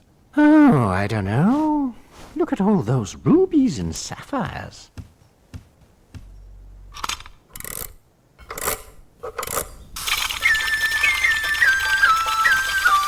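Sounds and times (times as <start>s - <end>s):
clockwork bird whistling tune: 10.1s - 13.0s.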